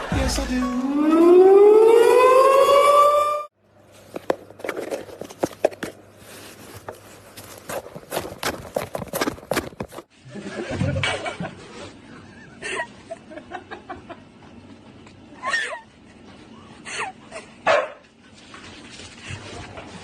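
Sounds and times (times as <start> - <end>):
dog barking and yipping: 17.7 - 18.0.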